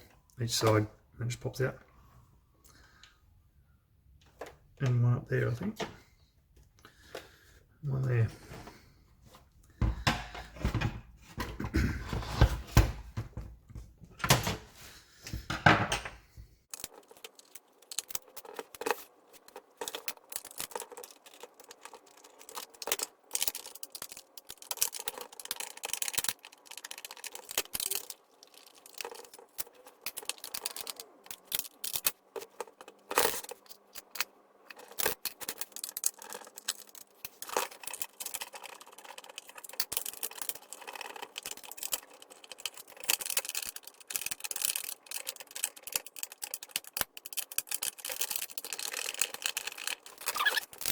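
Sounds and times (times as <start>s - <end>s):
heavy handling thumps: 9.7s - 11.7s.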